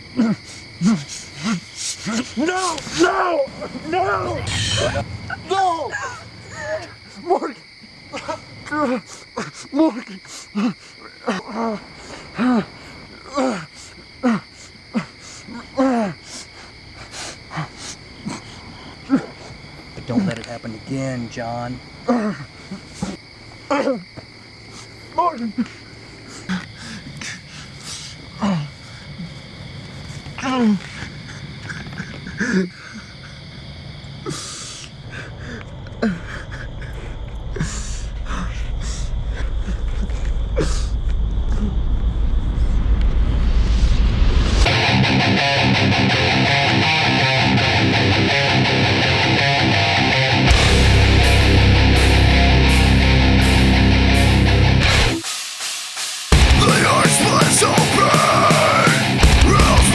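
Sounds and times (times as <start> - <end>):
crickets chirring: 0.0 - 59.9
man sobbing: 0.1 - 16.5, 17.5 - 19.5, 22.1 - 23.1, 56.4 - 59.9
low rumble: 4.0 - 6.5, 36.5 - 45.1.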